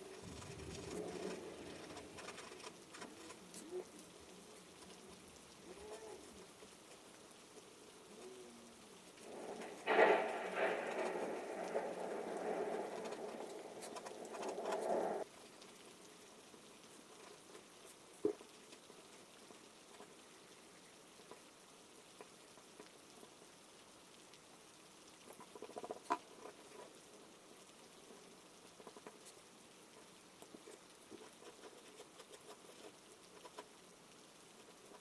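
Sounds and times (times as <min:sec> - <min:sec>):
faint rain patter: 0:00.0 - 0:35.0
soft ticks: 0:00.1 - 0:16.2.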